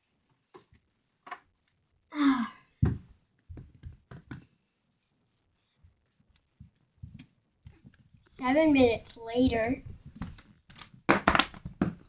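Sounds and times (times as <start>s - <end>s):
voiced sigh: 2.1s - 2.7s.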